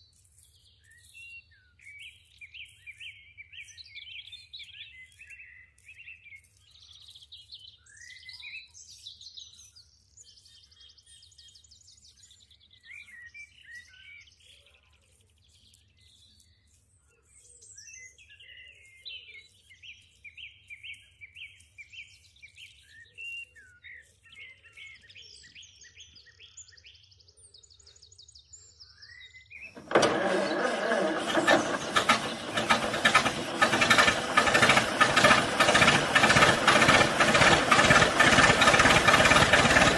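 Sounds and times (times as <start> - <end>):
small birds chirping: 0.0 - 39.9
small motor rattling: 29.8 - 39.9.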